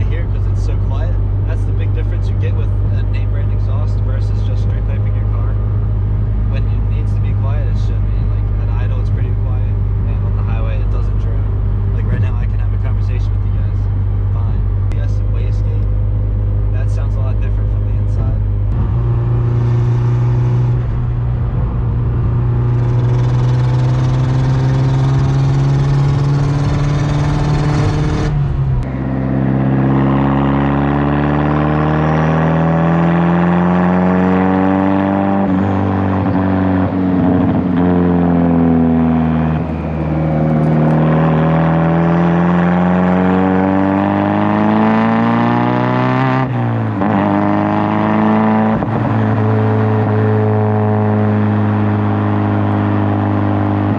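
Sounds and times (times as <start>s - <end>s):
car engine exhaust drone: 0.0s - 53.9s
car accelerating through gears: 17.8s - 53.9s.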